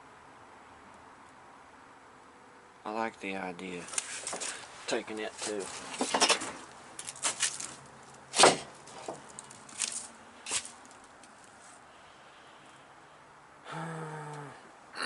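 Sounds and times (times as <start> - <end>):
metal parts clattering: 5.5 - 7.8.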